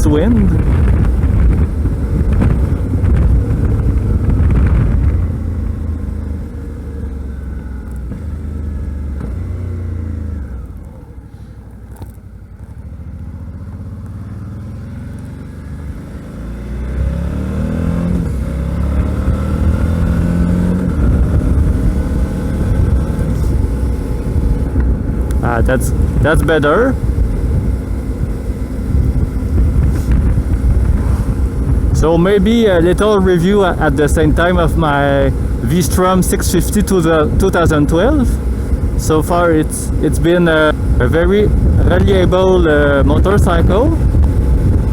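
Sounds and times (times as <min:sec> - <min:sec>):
motorcycle engine: 0:00.0 - 0:44.9
wind rumble on microphone: 0:00.0 - 0:44.9.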